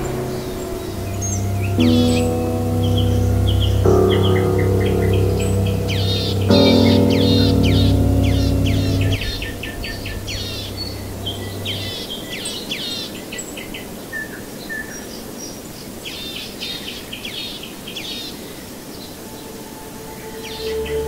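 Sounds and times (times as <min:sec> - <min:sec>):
birds chirping: 0:00.0 - 0:12.3.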